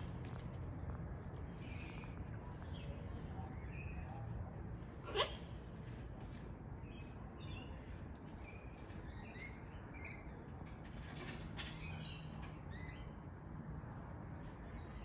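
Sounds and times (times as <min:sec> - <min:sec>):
birds chirping: 0:00.0 - 0:10.8.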